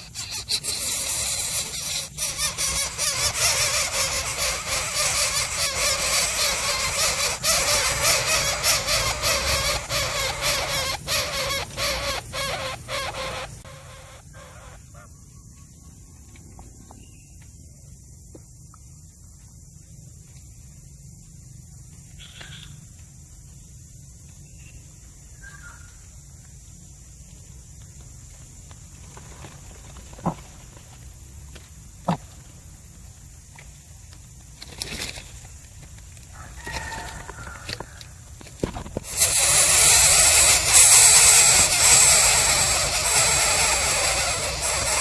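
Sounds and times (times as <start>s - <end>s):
chick squealing begging calls: 0.0s - 15.1s, 39.0s - 45.0s.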